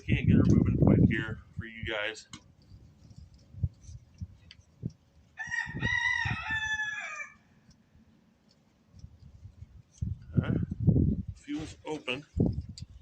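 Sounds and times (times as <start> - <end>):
rooster crowing: 5.4 - 7.6.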